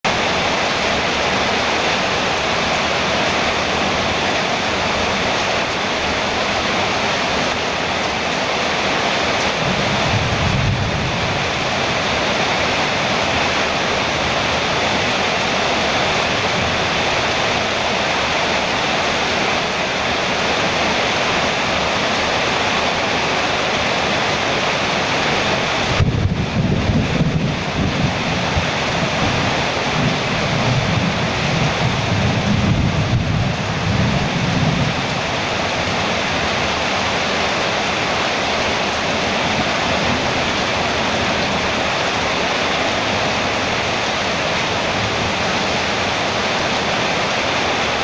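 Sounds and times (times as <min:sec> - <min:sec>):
heavy rain on metal roof: 0:00.0 - 0:48.0.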